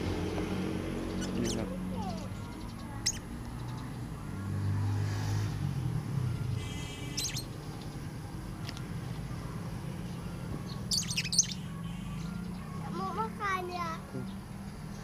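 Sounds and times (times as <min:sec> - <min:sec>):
bird chirping: 0:00.3 - 0:04.8, 0:06.8 - 0:08.1, 0:10.0 - 0:12.8.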